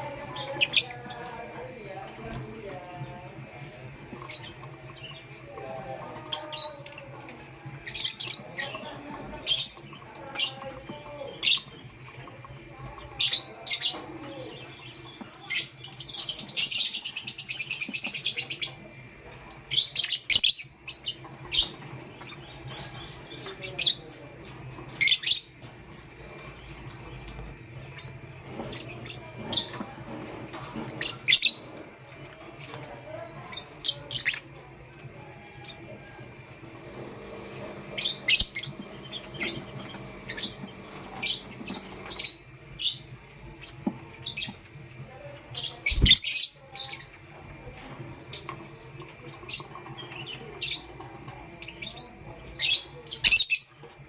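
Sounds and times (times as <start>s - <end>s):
fast bird chattering: 19.5s - 32.3s, 36.8s - 44.8s, 45.4s - 47.2s
bird chirping: 37.0s - 47.1s.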